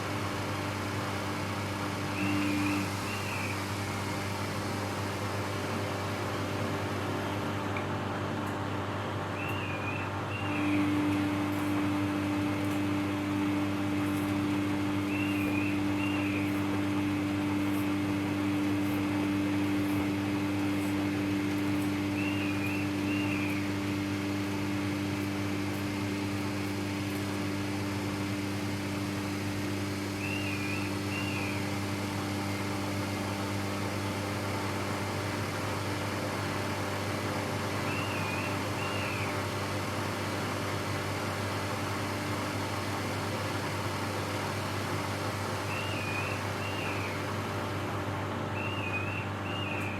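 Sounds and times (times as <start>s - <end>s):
washing machine motor hum: 0.0s - 49.9s.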